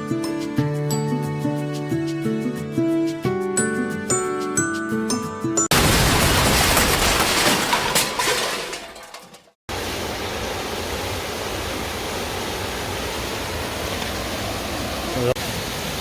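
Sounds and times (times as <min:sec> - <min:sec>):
mountain stream rushing: 0:09.7 - 0:16.0.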